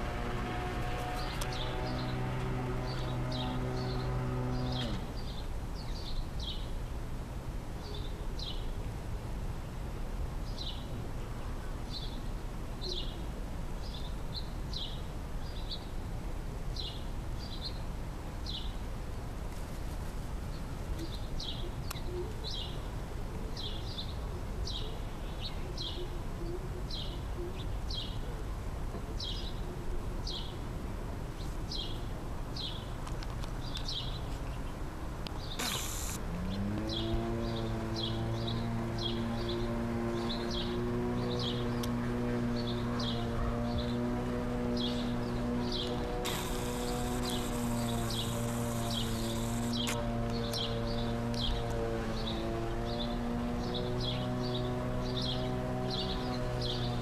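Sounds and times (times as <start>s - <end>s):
small bird chirping: 35.4s - 37.1s, 45.7s - 50.7s.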